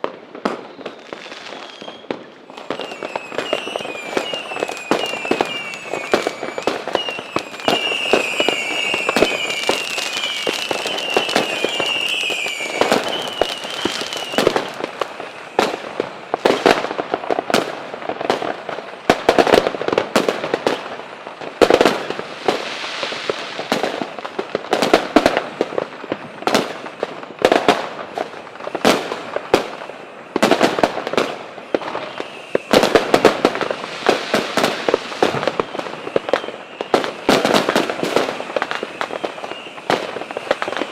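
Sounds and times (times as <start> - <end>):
fireworks bangs and crackling: 0.0 - 40.9
high wavering whistle: 1.6 - 14.5.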